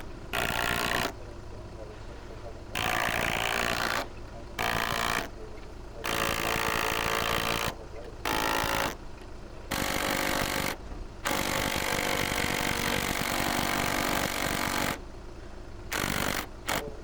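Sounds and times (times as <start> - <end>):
impact driver hammering: 0.0 - 1.2, 2.8 - 5.4, 6.0 - 9.1, 9.7 - 15.0, 15.9 - 17.0.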